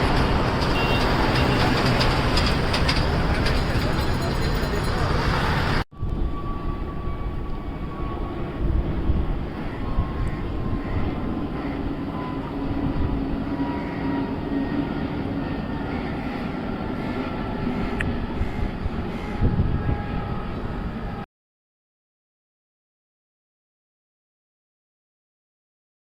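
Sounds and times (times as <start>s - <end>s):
jet engines rumbling: 0.0s - 21.2s
faint engine whine: 0.7s - 21.3s.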